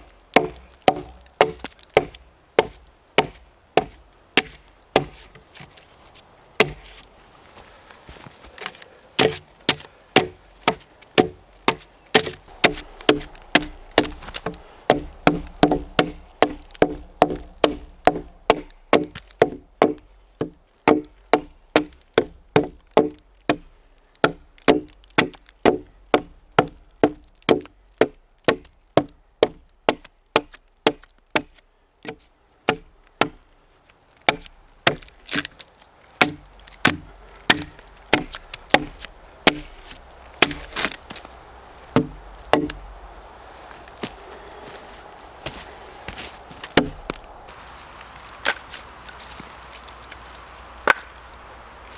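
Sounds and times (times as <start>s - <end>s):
axe chopping wooden log: 0.3s - 5.4s, 6.6s - 7.0s, 9.2s - 33.4s, 34.3s - 35.6s, 36.2s - 41.2s, 41.9s - 43.0s, 46.7s - 47.2s, 50.8s - 51.1s.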